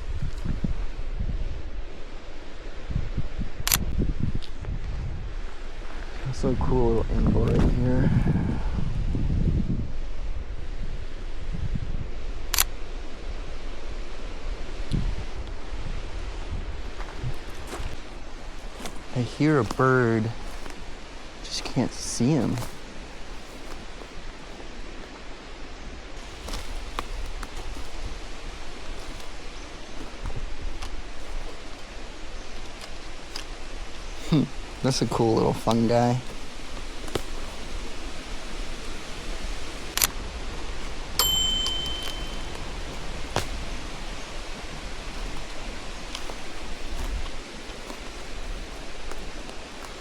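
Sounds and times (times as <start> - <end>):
steady forest hiss: 0.0 - 50.0
leaves rustling: 12.2 - 50.0.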